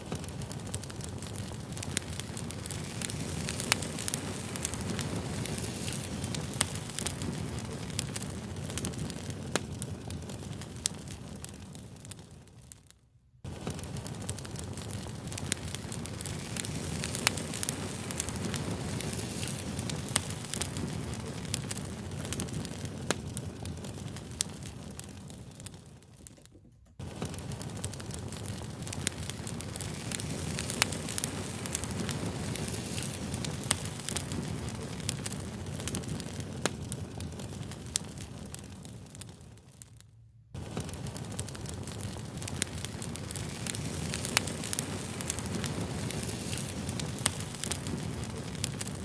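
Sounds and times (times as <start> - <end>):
fire crackling and popping: 0.0 - 49.0.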